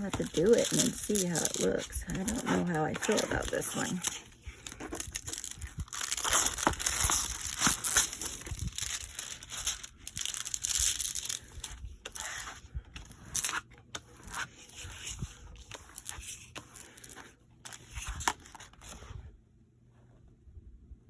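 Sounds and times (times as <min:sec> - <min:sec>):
plastic packaging crinkling: 0:00.0 - 0:13.6.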